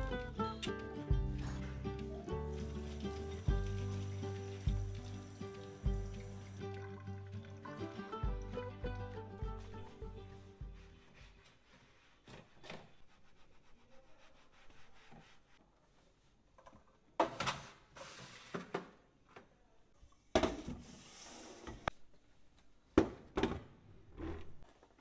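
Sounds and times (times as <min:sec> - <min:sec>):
items rubbing or sliding: 0:17.9 - 0:18.8.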